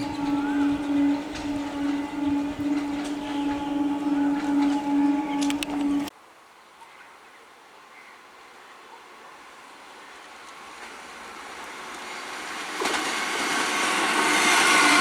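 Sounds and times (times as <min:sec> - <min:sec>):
train approaching: 0:00.0 - 0:06.1, 0:10.2 - 0:15.0.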